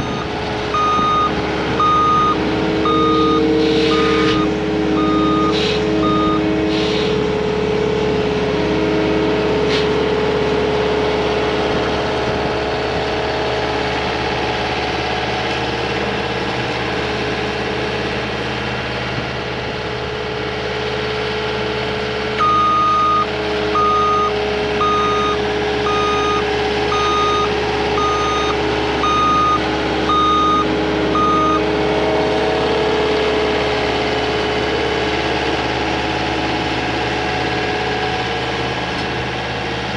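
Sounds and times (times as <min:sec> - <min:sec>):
backup alarm beeping: 0:00.0 - 0:06.4, 0:22.4 - 0:31.7
diesel engine running: 0:00.0 - 0:39.9.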